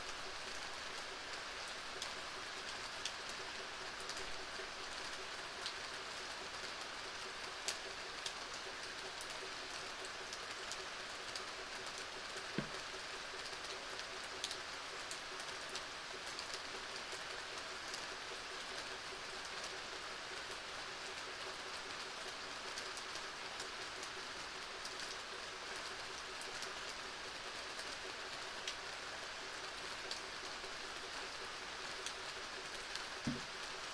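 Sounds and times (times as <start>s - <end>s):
steady rainfall: 0.0s - 33.9s
single raindrops: 33.2s - 33.7s.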